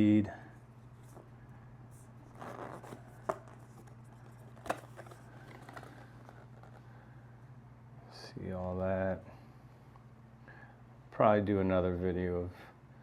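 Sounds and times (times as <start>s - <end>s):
steady low hum: 0.0s - 13.0s
paper packaging rustling: 2.0s - 6.9s.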